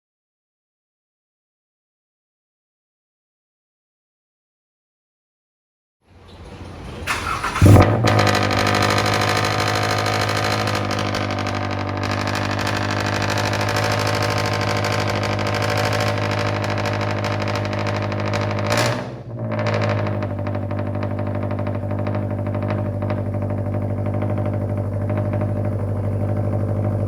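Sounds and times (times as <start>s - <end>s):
car engine starting and idling: 6.1s - 27.0s.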